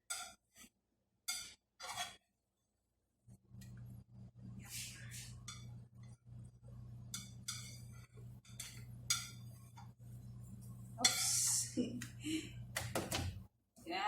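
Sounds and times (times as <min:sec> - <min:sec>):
spatula scraping frying pan: 0:00.0 - 0:00.7, 0:01.3 - 0:02.2, 0:07.0 - 0:09.9, 0:11.0 - 0:11.7
steady low hum: 0:03.4 - 0:13.4.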